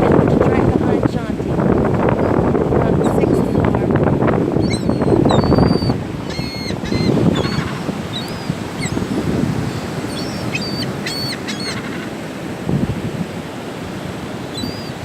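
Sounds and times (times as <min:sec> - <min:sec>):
surf: 0:00.0 - 0:15.0
wind: 0:00.0 - 0:15.0
gulls calling: 0:02.0 - 0:15.0.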